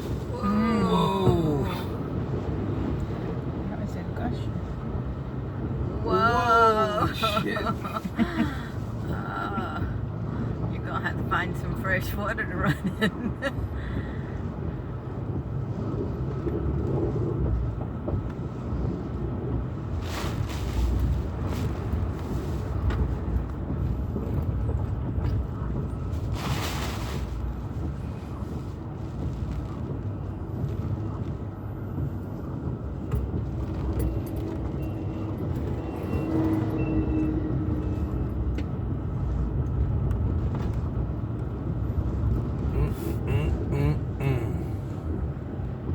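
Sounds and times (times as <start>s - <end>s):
car road rumble from inside: 0.0s - 45.9s.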